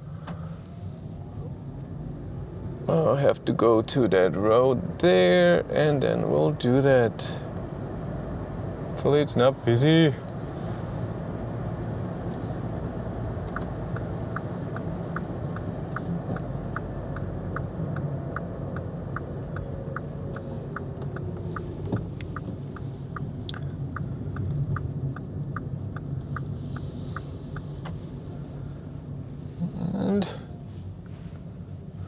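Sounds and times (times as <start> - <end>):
turn signal ticking: 12.2 - 28.2.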